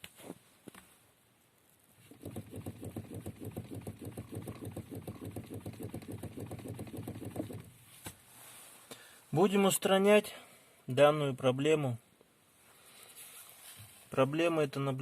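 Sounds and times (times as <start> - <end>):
steering shaft knocking and rattling: 2.1 - 7.8.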